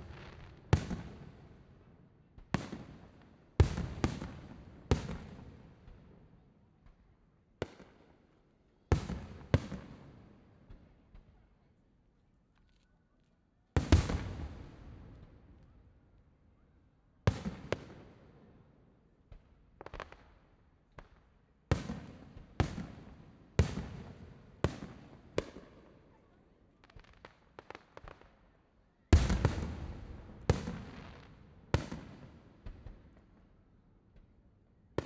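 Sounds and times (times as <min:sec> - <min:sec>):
small firework cracks: 0:13.8 - 0:15.8, 0:19.3 - 0:22.9, 0:26.8 - 0:33.4
fireworks booming: 0:13.9 - 0:15.2, 0:29.2 - 0:32.0.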